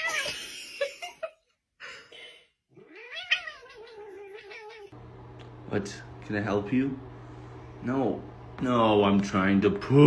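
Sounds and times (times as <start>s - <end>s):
cat yowling: 2.8s - 5.0s.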